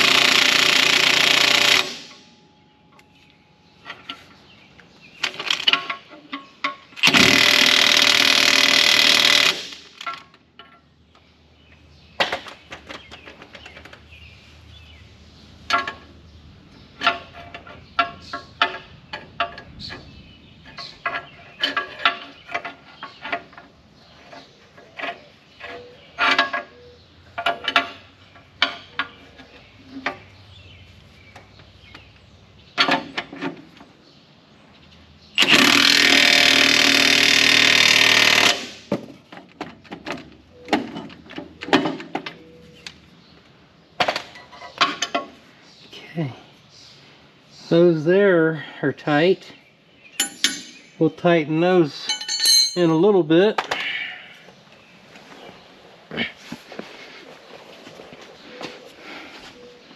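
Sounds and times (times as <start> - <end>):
impact wrench hammering bolts: 0.0 - 2.2, 5.2 - 10.7, 35.4 - 39.1, 50.2 - 50.9
metal tool clinks and knocks: 50.2 - 51.0, 52.0 - 53.0.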